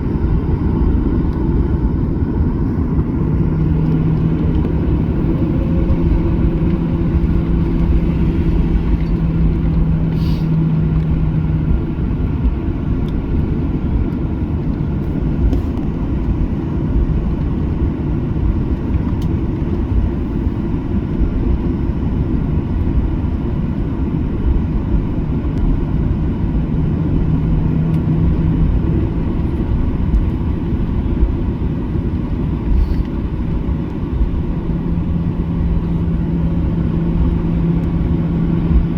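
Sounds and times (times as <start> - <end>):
aircraft cabin engine rumble: 0.0 - 38.9
steady hum: 0.0 - 38.9.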